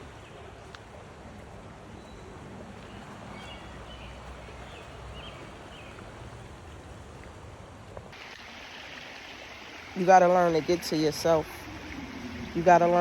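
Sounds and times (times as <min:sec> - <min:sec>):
stream rushing: 0:02.8 - 0:13.0.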